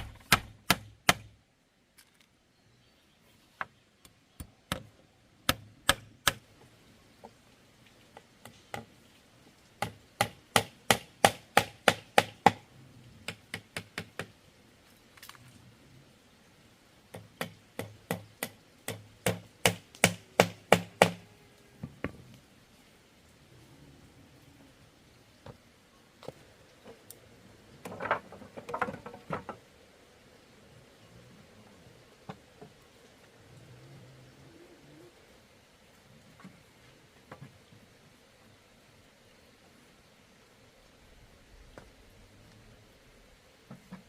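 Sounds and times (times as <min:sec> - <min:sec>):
hand tool striking bamboo: 0:00.0 - 0:01.3, 0:05.5 - 0:06.4, 0:09.8 - 0:12.6, 0:17.4 - 0:21.2.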